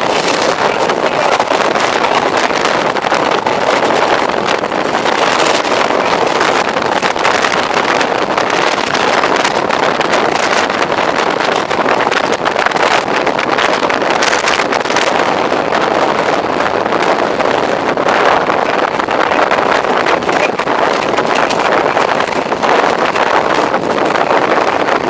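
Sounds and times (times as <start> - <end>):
train wheels rushing on track: 0.0 - 24.8
fine rattling: 18.9 - 24.9.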